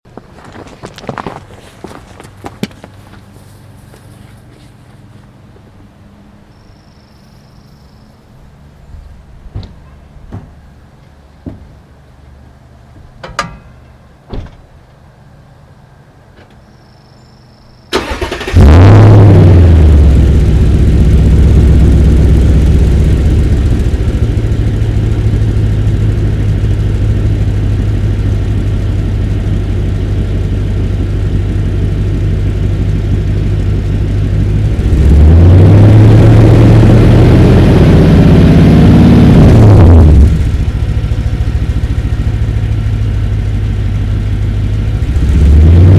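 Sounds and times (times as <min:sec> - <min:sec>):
truck engine starting and revving: 0:17.9 - 0:45.9.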